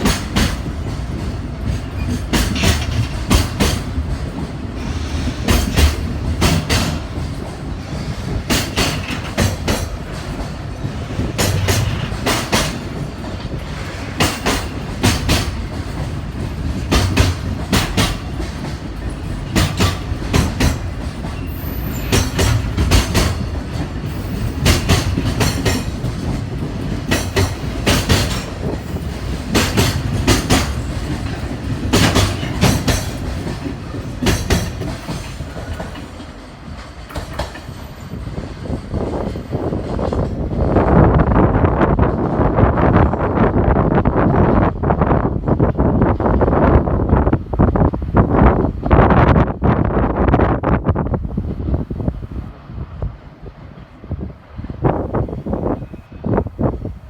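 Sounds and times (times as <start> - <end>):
wheels clattering over rail joints: 0.0 - 40.7
freight train rumbling: 0.0 - 57.0.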